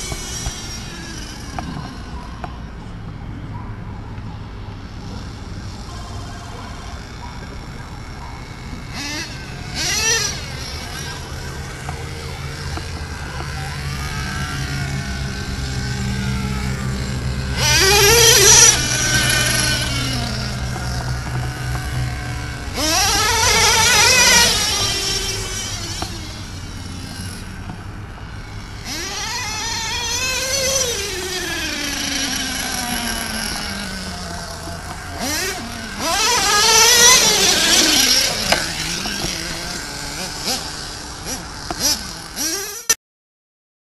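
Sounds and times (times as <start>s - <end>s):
nitro model engine surging: 0.0s - 2.9s, 4.9s - 43.0s.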